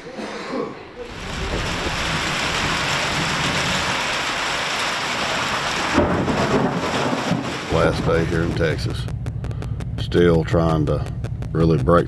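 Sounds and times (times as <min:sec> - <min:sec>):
steady rain falling: 0:01.0 - 0:09.1.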